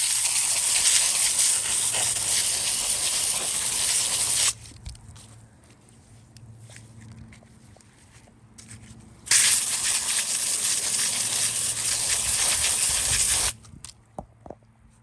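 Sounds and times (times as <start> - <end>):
loud steady hiss: 0.0 - 4.6, 9.3 - 13.6.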